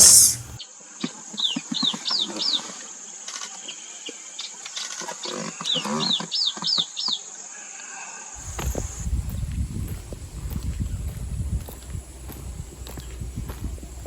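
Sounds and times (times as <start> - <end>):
birds chattering: 0.0 - 0.6, 8.4 - 14.0
birds whistling calls: 0.0 - 0.6, 8.4 - 14.0.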